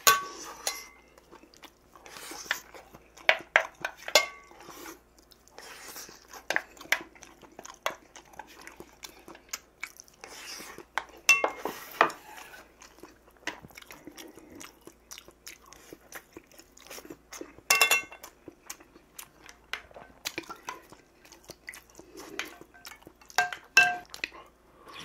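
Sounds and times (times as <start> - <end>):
chopsticks clinking on metal bowl: 0.0 - 1.0, 3.3 - 4.5, 11.3 - 11.7, 17.7 - 18.3, 22.4 - 24.2
chewing and crunching food: 0.0 - 25.0.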